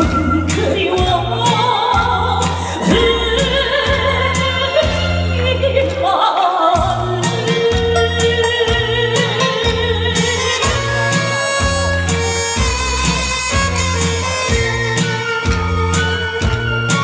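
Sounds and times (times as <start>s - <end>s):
backing track with bass and drums: 0.0s - 6.0s, 6.8s - 17.0s
woman singing with vibrato: 0.0s - 11.9s.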